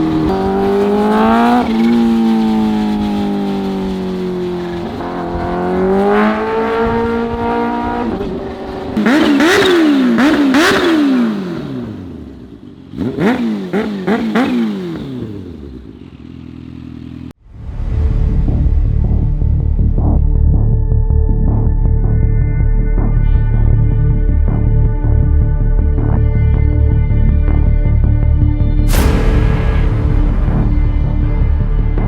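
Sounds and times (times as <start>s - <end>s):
motorcycle engine revving: 0.0s - 17.4s.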